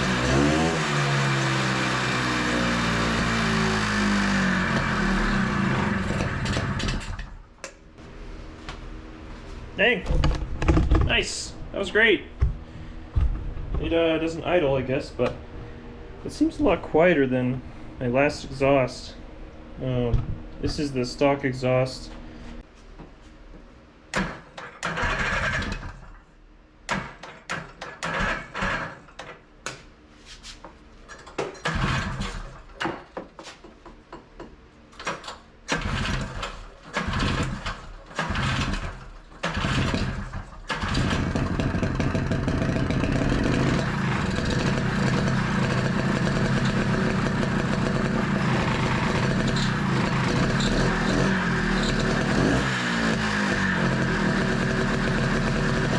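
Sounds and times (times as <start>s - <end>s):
two-stroke engine firing: 0.0s - 7.4s, 24.1s - 26.1s, 27.9s - 29.0s, 31.6s - 32.8s, 35.0s - 55.9s.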